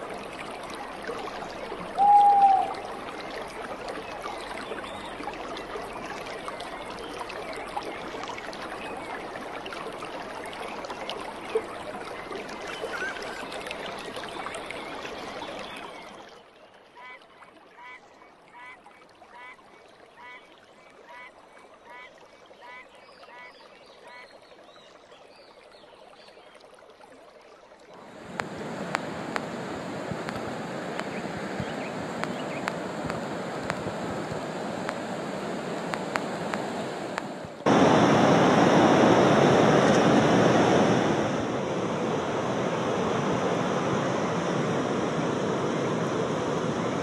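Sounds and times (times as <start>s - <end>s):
faint chirps: 2.0s - 2.8s.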